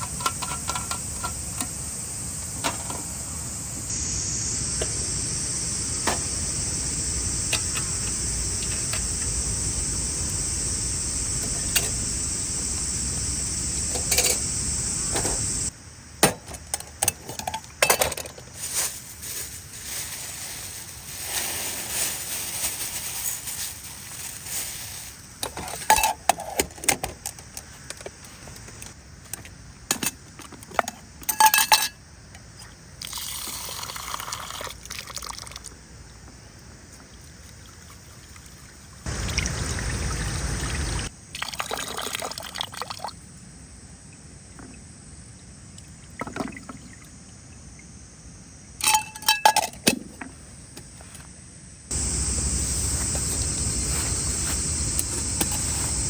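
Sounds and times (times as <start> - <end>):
camp gear clicks and knocks: 16.2 - 18.6, 51.9 - 56.0
liquid being poured: 39.1 - 43.1.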